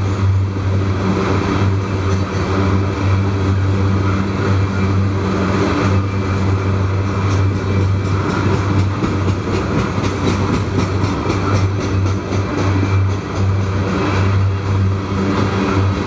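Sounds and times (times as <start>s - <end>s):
freight train wheels rumbling on rails: 0.0s - 16.0s
wheels clicking over rail joints: 5.4s - 15.9s.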